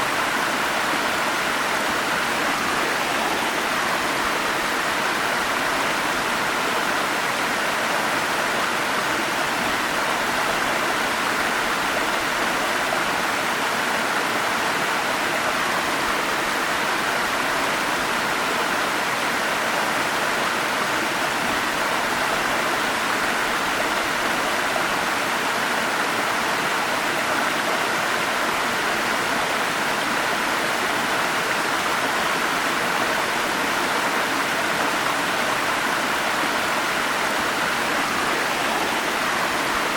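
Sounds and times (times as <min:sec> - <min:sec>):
stream flowing over small falls: 0:00.0 - 0:39.9.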